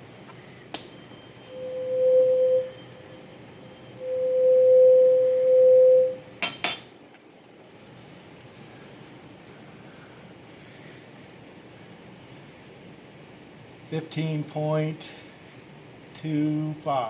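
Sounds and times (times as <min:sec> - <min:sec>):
tuning fork ringing: 0:00.9 - 0:07.0.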